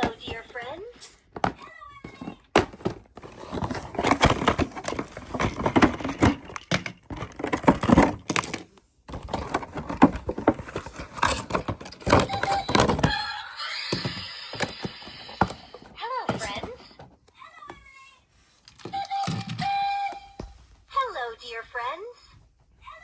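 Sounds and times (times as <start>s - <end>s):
packaging rustling and crinkling: 2.2s - 13.3s.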